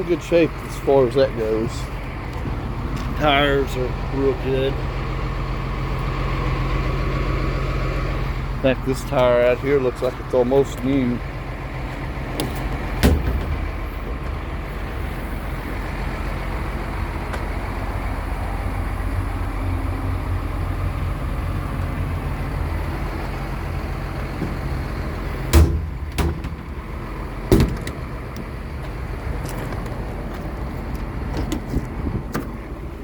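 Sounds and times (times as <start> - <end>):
steady low rumble: 0.0 - 33.0
metal door bangs: 12.4 - 14.4, 25.4 - 26.8, 27.5 - 28.0.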